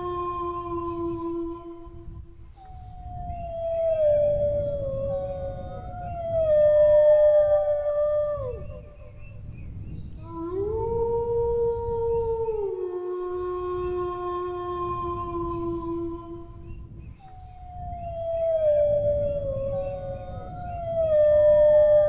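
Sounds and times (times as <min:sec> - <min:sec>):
dog howling: 0:03.0 - 0:09.3, 0:10.2 - 0:16.8, 0:17.5 - 0:22.0.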